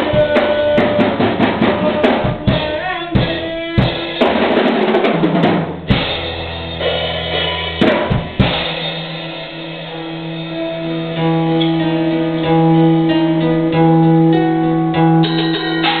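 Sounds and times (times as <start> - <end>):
drum and cymbal hits: 0.0 - 11.8, 15.2 - 16.0
guitars and bass ringing chords: 5.9 - 16.0.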